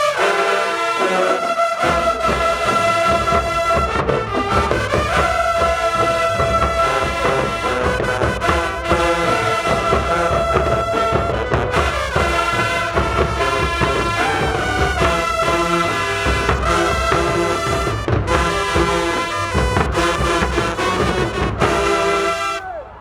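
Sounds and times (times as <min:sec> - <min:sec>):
marching band playing: 0:00.0 - 0:22.6
steady drum beat: 0:01.8 - 0:22.6.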